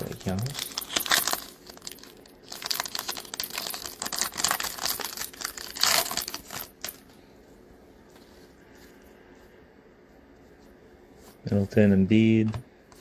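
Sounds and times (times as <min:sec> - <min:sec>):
foil wrapper crinkling and tearing: 0:00.1 - 0:06.9.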